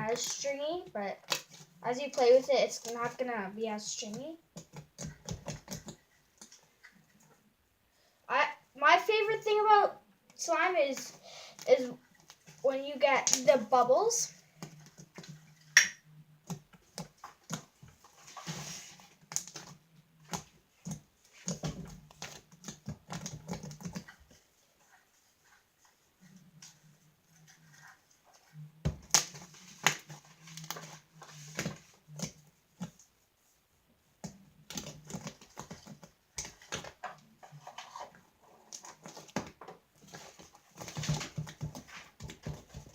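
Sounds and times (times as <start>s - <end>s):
slime squelch: 0.0s - 7.2s.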